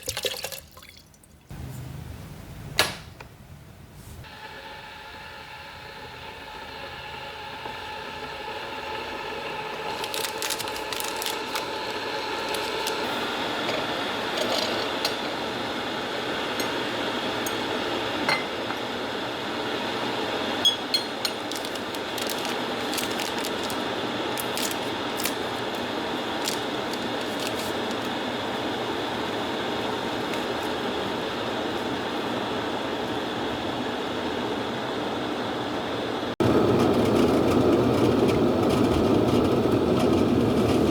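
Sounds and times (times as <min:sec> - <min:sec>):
kettle heating water hiss: 0:04.2 - 0:10.0, 0:10.6 - 0:20.6, 0:21.2 - 0:36.7.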